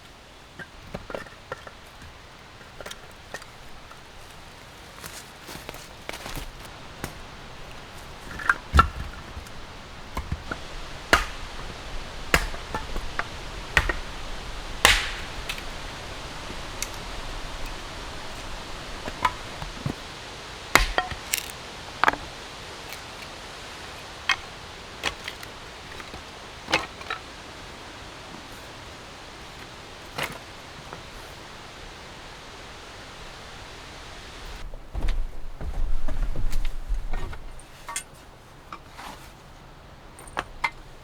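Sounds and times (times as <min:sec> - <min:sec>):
steady hiss: 0:00.0 - 0:41.0.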